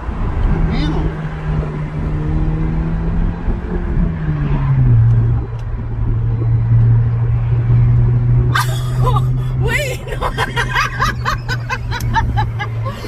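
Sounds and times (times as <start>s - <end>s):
car exhaust drone: 4.8s - 13.0s.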